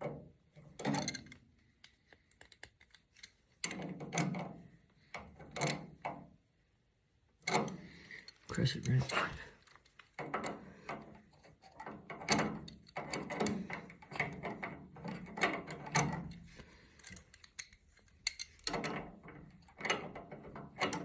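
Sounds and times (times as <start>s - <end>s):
wrench clicking on metal fittings: 17.0s - 19.0s.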